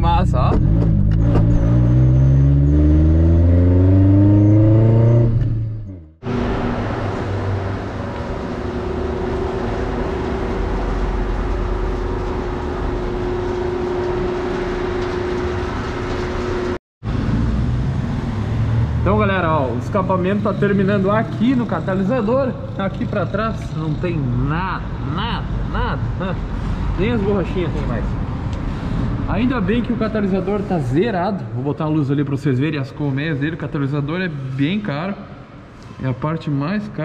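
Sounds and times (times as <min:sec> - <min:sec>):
car engine revving: 0:00.0 - 0:25.1
steady running noise with hum: 0:06.3 - 0:16.8.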